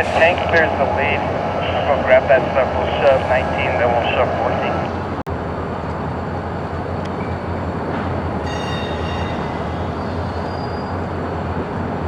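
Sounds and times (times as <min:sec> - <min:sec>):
freight train rumbling: 0:00.0 - 0:12.0
metallic wheel squeal: 0:08.4 - 0:11.2.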